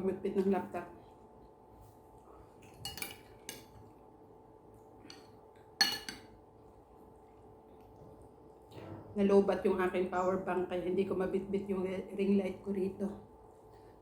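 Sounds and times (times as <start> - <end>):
metal cutlery clinking on plate: 2.8 - 3.7, 5.1 - 6.3.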